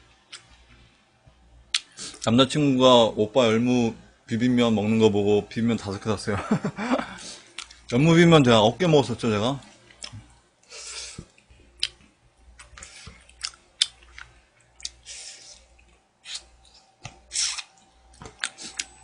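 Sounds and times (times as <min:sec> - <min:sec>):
person chewing food: 0:07.2 - 0:07.9, 0:09.8 - 0:19.0.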